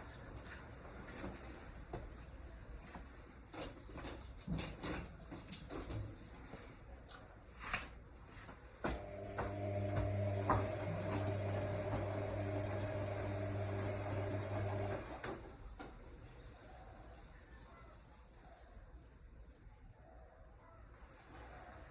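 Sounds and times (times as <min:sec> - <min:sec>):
washing machine clicks and knocks: 0:08.9 - 0:13.0
electric motor hum: 0:09.0 - 0:15.2.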